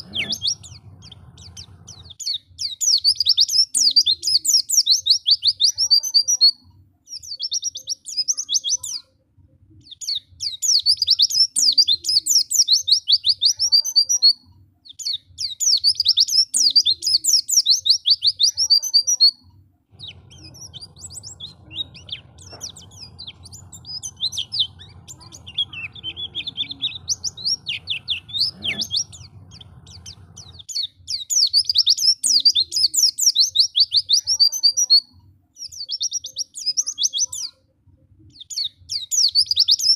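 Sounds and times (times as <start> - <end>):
bird chattering trills: 0.0 - 6.4, 19.9 - 35.1
faint low hum: 0.0 - 39.6.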